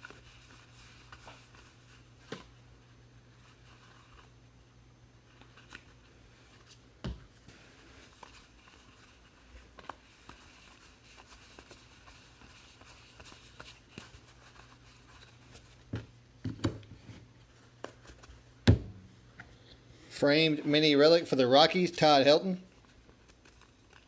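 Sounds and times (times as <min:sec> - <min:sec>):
low steady hum: 0:00.0 - 0:24.0
cards rustling: 0:07.4 - 0:15.9, 0:20.4 - 0:24.0.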